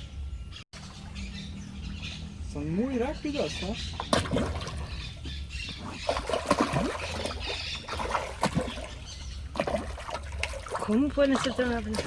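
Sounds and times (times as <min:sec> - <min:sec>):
water splashing and trickling: 0:00.8 - 0:12.0.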